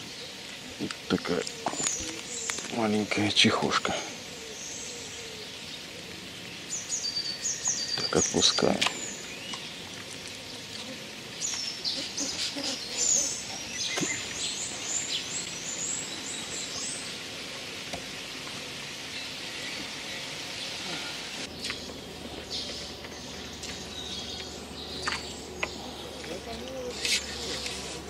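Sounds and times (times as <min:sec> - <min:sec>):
steady outdoor hiss: 0:00.0 - 0:28.0
bird singing high chirps: 0:06.6 - 0:09.8, 0:21.5 - 0:27.6.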